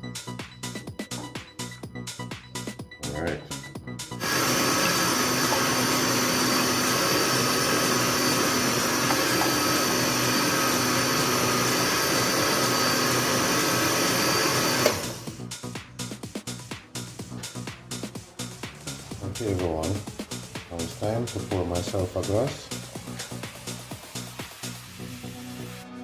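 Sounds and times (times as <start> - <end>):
blender motor whining: 4.2 - 15.4.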